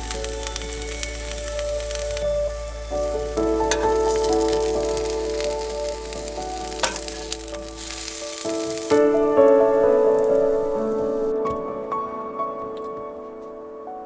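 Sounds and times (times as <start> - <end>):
hot dogs sizzling in a pan: 0.0 - 9.3
background music: 0.0 - 14.0.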